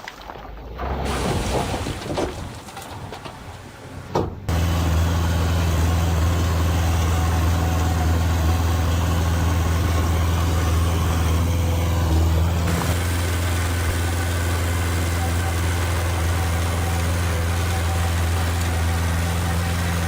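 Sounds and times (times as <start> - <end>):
heavy diesel engine running: 4.4 - 20.0.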